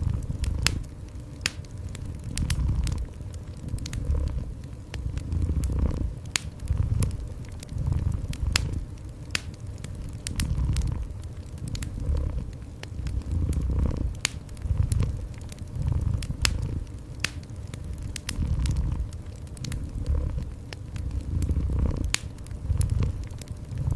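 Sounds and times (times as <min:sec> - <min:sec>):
wood fire crackling and popping: 0:00.0 - 0:23.9
cat purring: 0:02.3 - 0:08.9, 0:10.2 - 0:16.9, 0:18.2 - 0:23.9.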